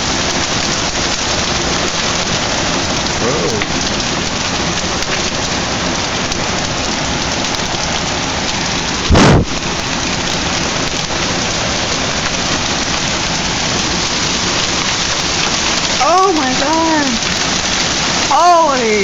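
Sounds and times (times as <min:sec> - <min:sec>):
hail and rain pelting down: 0:00.0 - 0:19.0.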